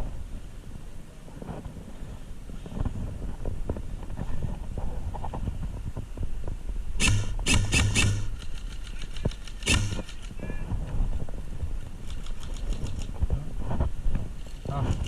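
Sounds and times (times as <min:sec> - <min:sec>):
airsoft gun shots: 0:07.0 - 0:10.4.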